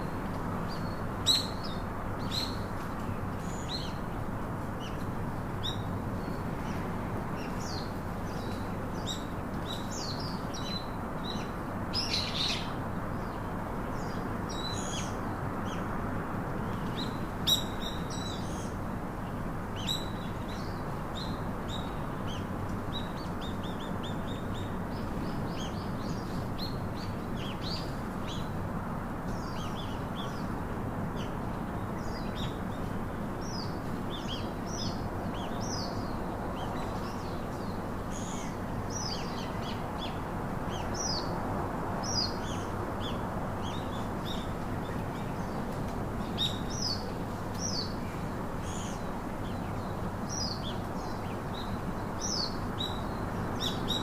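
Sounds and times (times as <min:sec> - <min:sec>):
low rushing background noise: 0:00.0 - 0:54.0
songbirds chirping and trilling: 0:00.0 - 0:54.0.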